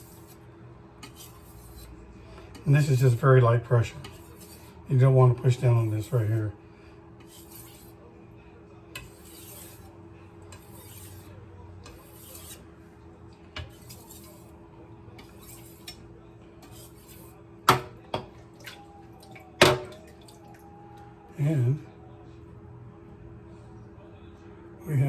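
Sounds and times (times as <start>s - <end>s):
knife scraping on whetstone: 0.0s - 0.4s, 1.0s - 2.0s, 3.9s - 4.8s, 5.5s - 6.4s, 7.2s - 8.0s, 9.0s - 12.7s, 13.6s - 14.6s, 15.2s - 16.0s, 16.6s - 17.9s.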